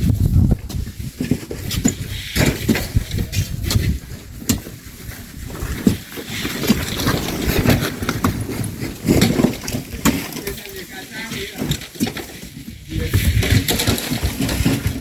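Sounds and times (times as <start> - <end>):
wind rumble on microphone: 0.0 - 10.1, 11.7 - 15.0
shovels scraping sand and gravel: 0.2 - 15.0
knocks and clinks of thrown loads: 5.5 - 15.0.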